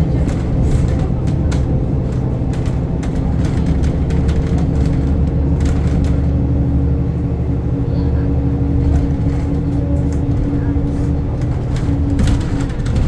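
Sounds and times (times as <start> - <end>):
bus engine and road rumble: 0.0 - 13.0
cabin rattles: 11.4 - 13.0.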